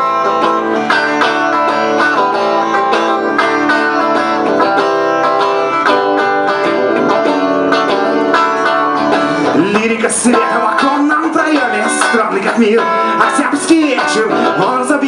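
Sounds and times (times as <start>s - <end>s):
guitar playing chords: 0.0s - 15.0s
person singing: 8.3s - 15.0s.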